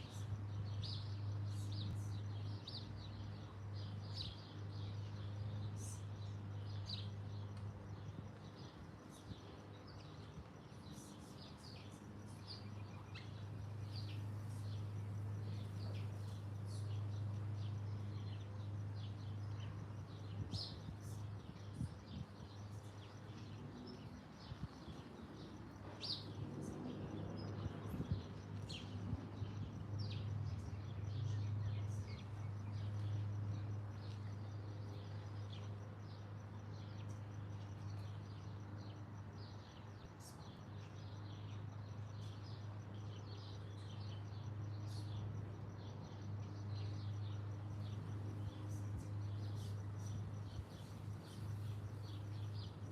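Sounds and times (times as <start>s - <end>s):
small birds chirping: 0.0s - 52.9s
steady low hum: 0.0s - 52.9s.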